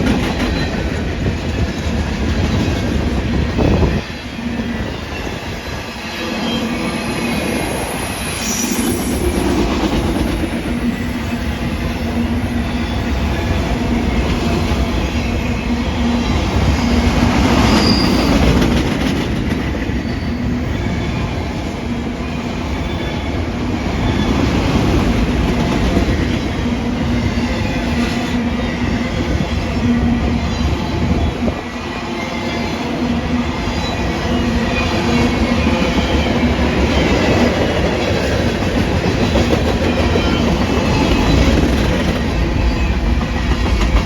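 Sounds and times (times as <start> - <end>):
train wheels rumbling on rails: 0.0 - 44.0
high wheel squeals: 3.6 - 9.8, 10.4 - 18.6.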